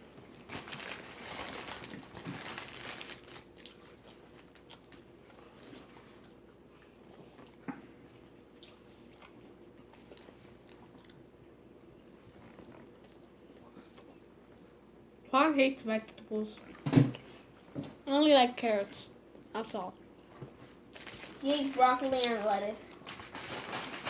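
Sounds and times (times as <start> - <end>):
chewing and crunching: 0.4 - 15.2
rustling: 20.4 - 24.0.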